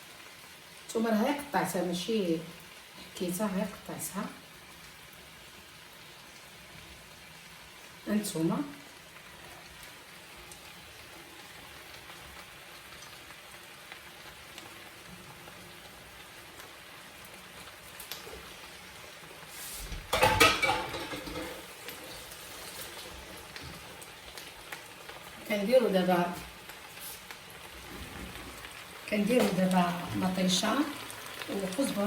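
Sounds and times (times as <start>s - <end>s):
vegetables sizzling in a pan: 0.0s - 32.0s
clatter in a pan: 20.0s - 23.8s.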